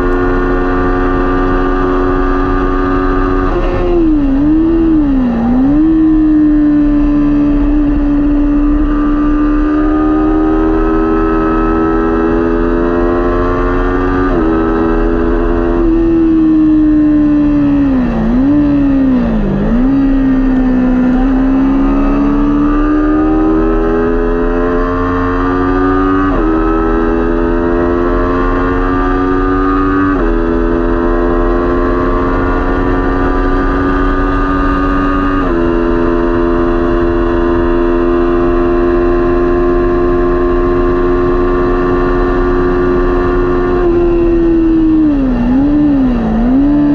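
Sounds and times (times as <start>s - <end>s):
motorcycle engine revving high: 0.0s - 46.9s.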